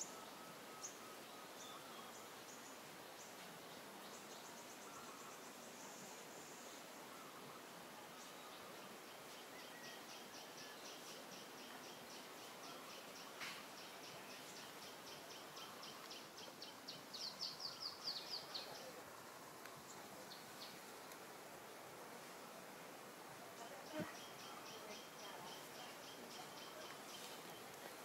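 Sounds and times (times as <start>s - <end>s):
faint outdoor background noise: 0.0s - 28.0s
bird chirping: 8.1s - 18.9s, 23.9s - 28.0s.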